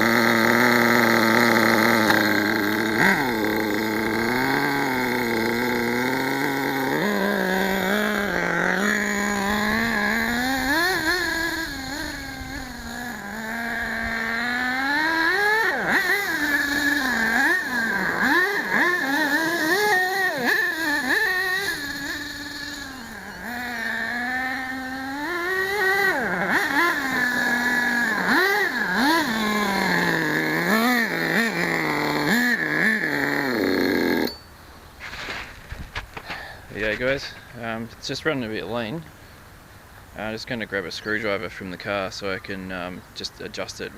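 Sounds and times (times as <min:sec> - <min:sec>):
model truck engine revving: 0:00.0 - 0:34.4
man talking: 0:36.7 - 0:39.1, 0:40.2 - 0:43.9.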